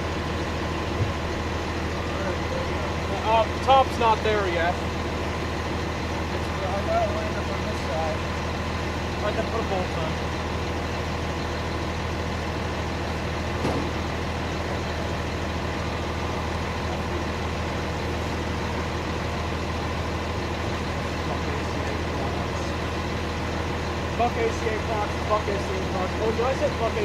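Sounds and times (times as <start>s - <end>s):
truck engine idling: 0.0s - 27.0s
short knock: 13.6s - 14.0s.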